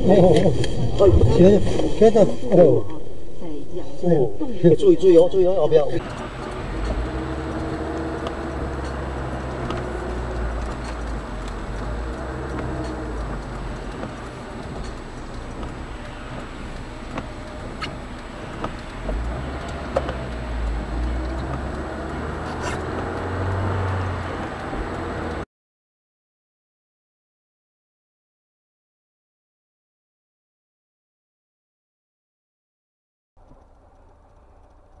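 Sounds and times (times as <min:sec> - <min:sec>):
car engine and road noise: 0:00.0 - 0:25.5, 0:33.4 - 0:35.0
small clicks and knocks: 0:06.0 - 0:25.4.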